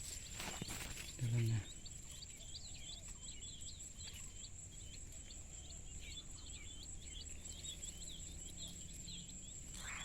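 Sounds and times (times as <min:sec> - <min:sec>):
small birds chirping: 0:00.0 - 0:10.0
high-pitched insect whine: 0:09.6 - 0:10.0.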